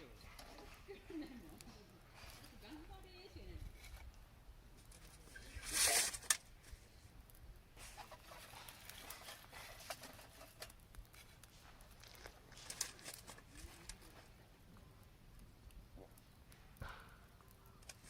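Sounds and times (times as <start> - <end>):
rustling: 0.0 - 7.1, 7.8 - 14.5.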